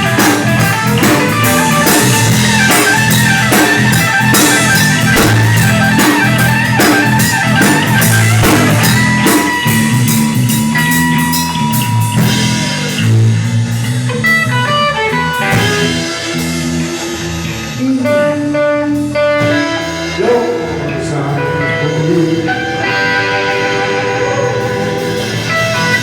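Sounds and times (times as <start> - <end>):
drum kit: 0.0 - 26.0
electric guitar: 0.0 - 26.0.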